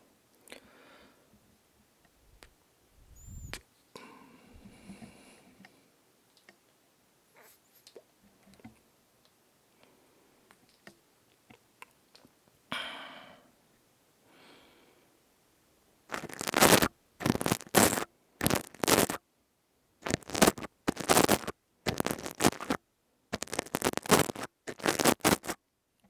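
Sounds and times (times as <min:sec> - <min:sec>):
rough scraping on microphone: 0:03.0 - 0:03.6, 0:16.1 - 0:19.2, 0:20.0 - 0:22.8, 0:23.4 - 0:25.6.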